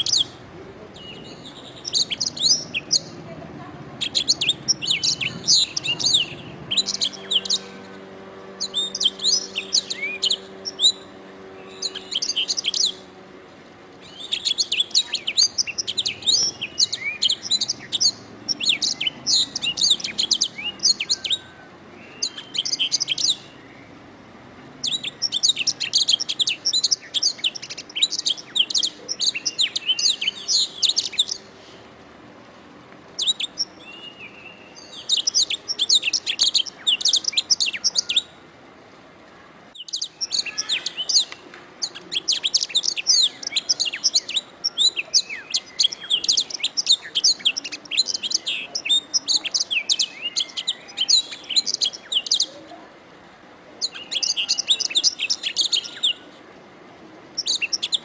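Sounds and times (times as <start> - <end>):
canary chirping and trilling: 0.0 - 0.4, 1.0 - 3.2, 3.9 - 13.2, 14.0 - 23.6, 24.8 - 31.5, 33.2 - 38.3, 39.7 - 52.5, 53.8 - 56.2, 57.4 - 58.0.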